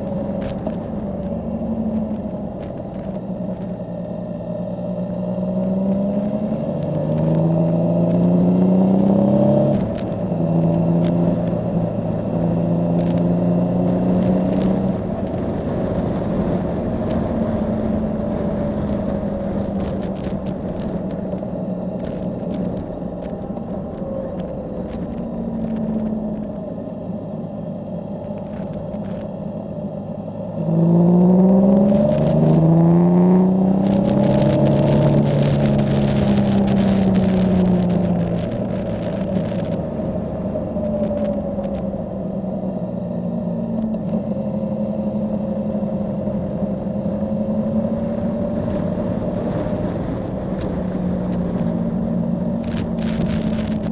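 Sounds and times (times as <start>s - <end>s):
wind noise: 0.0s - 27.2s, 30.5s - 53.9s
motorcycle engine: 0.0s - 53.9s.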